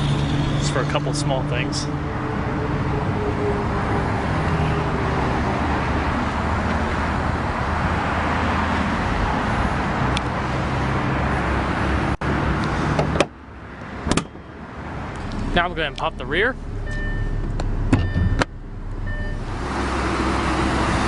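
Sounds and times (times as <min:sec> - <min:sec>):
car engine idling: 0:15.1 - 0:21.0.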